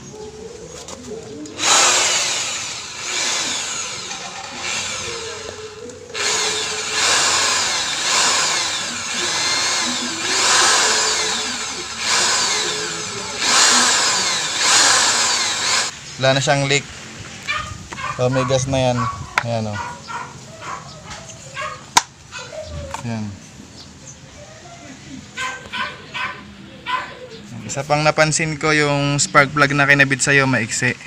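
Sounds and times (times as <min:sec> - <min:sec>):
motorcycle engine revving: 0:01.5 - 0:16.0.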